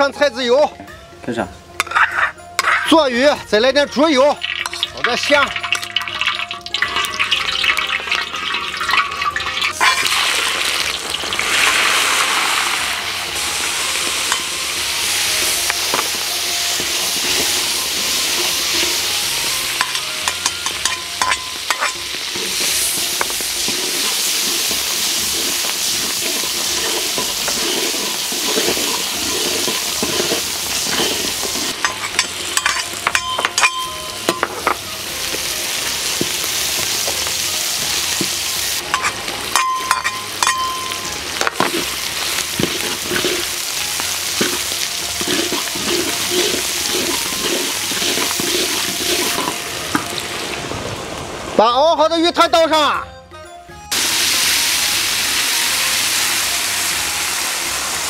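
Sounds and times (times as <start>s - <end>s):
oil sizzling in wok: 4.1s - 51.6s, 53.9s - 58.0s
aromatics hissing in oil: 9.7s - 33.2s, 35.0s - 40.5s, 41.1s - 50.5s, 53.9s - 58.0s.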